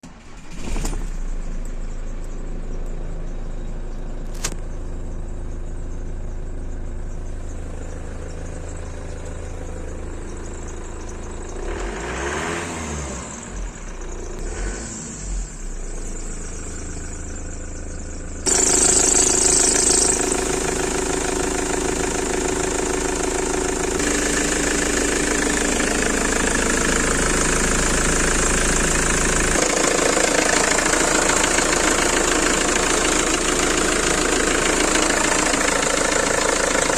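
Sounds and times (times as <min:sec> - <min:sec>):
diesel engine running: 0:00.0 - 0:36.9
drive belt squealing: 0:15.7 - 0:36.9.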